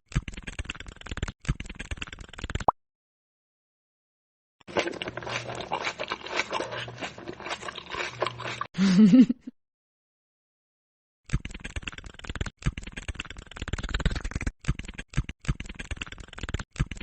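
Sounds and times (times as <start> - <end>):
crunchy chewing: 0.1 - 2.7, 4.7 - 8.7, 11.3 - 17.0
person humming mm: 8.8 - 9.2.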